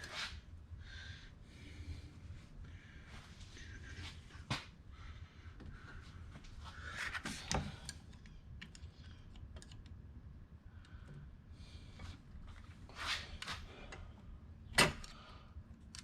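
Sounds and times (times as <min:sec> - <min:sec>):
clicks of tools and engine parts: 0:07.0 - 0:10.0, 0:14.7 - 0:15.2, 0:15.8 - 0:16.0.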